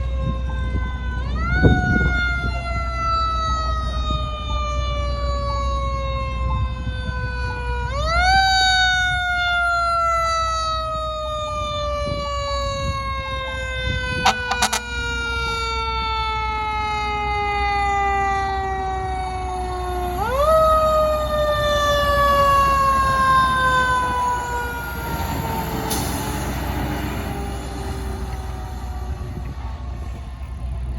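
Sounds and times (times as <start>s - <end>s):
fire truck siren wailing: 0.0s - 30.9s
low engine rumble: 10.9s - 30.9s.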